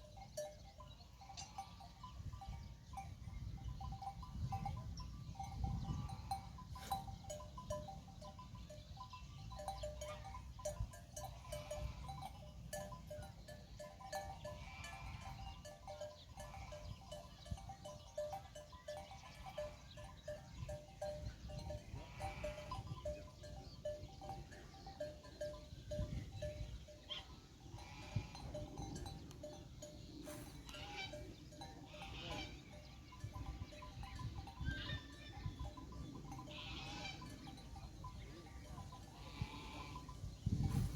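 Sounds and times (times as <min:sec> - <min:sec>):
flock of sheep bleating: 0:31.8 - 0:32.7, 0:36.3 - 0:37.4, 0:39.0 - 0:40.2.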